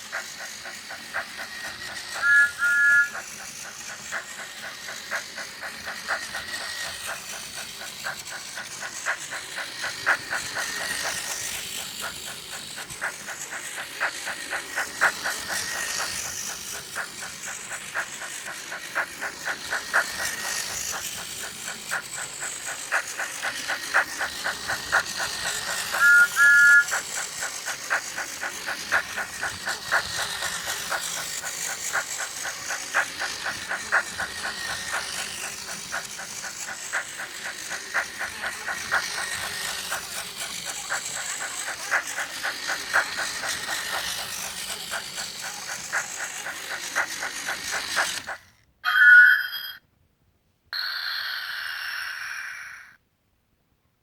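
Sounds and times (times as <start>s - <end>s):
steam hiss: 0.0s - 48.5s
steam locomotive chuffing: 0.0s - 49.2s
two-note train whistle: 2.2s - 3.3s, 26.0s - 26.9s.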